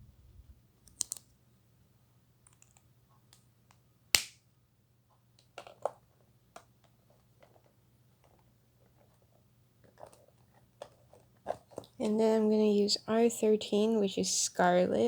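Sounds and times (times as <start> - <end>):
plastic marker caps clicking: 0.8 - 1.3.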